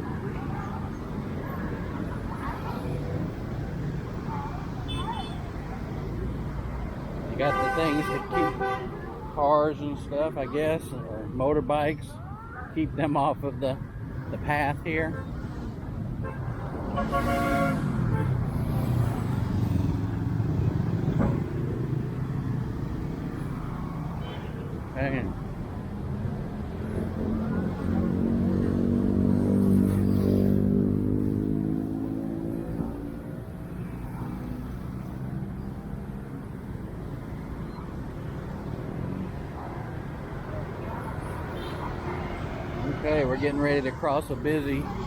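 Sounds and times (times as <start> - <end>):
low rumble of traffic: 0.0 - 45.0
vehicles passing: 0.0 - 45.0
passing vehicle engine: 25.1 - 45.0.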